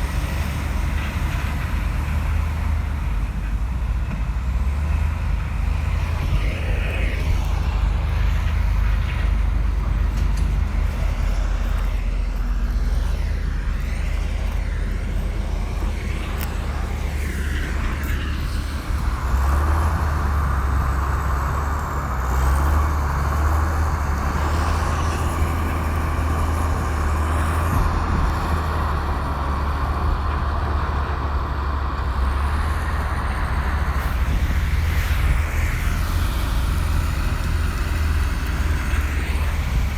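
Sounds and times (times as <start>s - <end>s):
bulldozer diesel engine rumbling: 0.0s - 39.9s
steady high whine: 5.3s - 22.1s.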